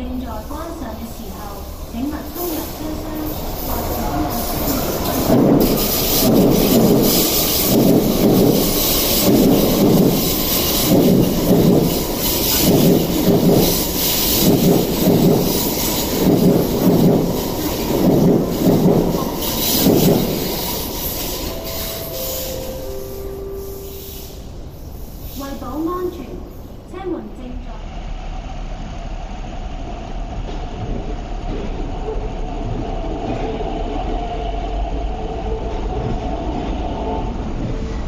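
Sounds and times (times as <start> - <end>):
train rhythmic rumble: 0.0 - 38.0.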